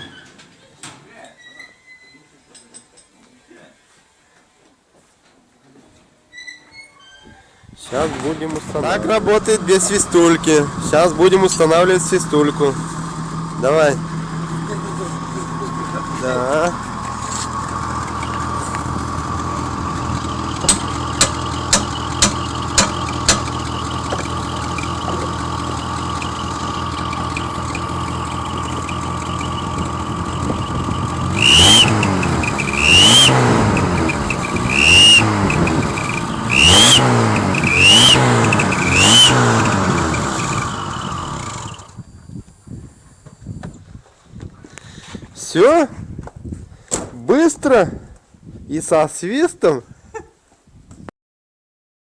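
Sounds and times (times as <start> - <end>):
car engine idling and revving: 7.9 - 42.2
turbo whistle: 20.1 - 25.2, 31.1 - 40.6
sharp clicks: 20.1 - 25.3.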